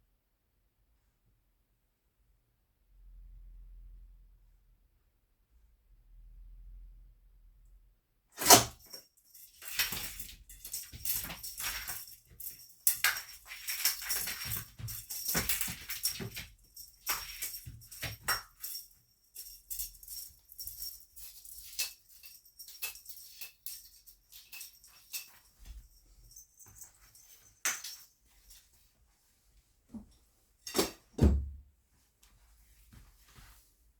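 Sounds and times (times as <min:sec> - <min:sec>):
cat toy jingling and rattling: 0:08.4 - 0:28.9.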